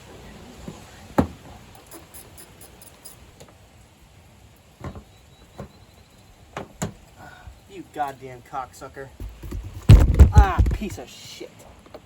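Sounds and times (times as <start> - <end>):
dull knocks of tools: 4.8 - 5.8, 9.2 - 11.0.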